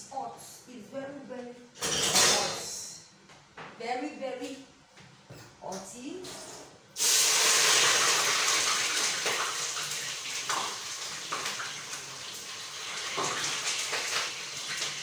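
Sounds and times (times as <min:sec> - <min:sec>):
food sizzling in hot oil: 0:07.0 - 0:15.0.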